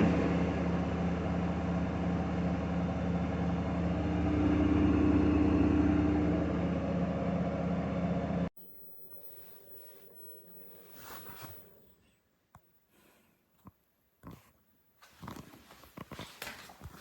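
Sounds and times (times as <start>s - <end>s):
washing machine spinning: 0.0s - 8.5s.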